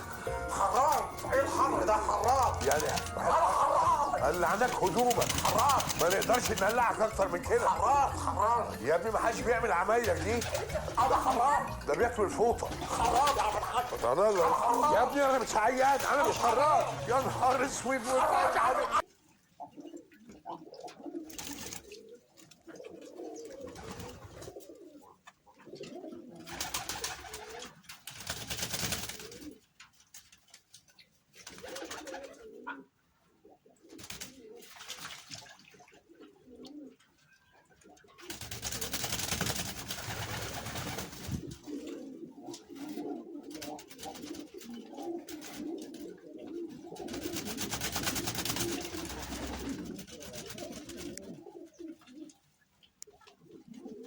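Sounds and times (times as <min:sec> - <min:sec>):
pigeons cooing: 0:00.0 - 0:29.8, 0:31.3 - 0:54.0.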